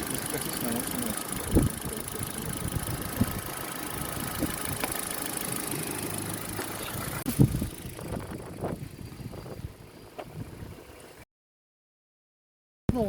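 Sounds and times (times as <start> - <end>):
scattered clicks: 0.0 - 6.9
radiator cooling fan running: 0.0 - 9.6
car engine idling: 0.0 - 10.2.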